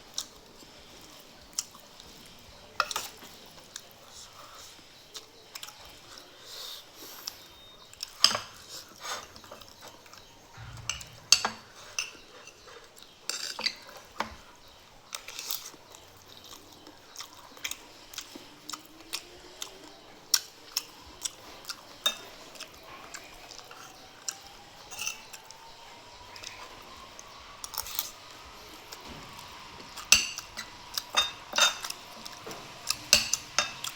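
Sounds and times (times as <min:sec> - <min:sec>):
chewing: 0:00.1 - 0:11.2, 0:12.6 - 0:33.9
cutlery clinking against dishes: 0:02.7 - 0:06.2, 0:07.2 - 0:14.4, 0:20.4 - 0:25.6, 0:28.9 - 0:33.9.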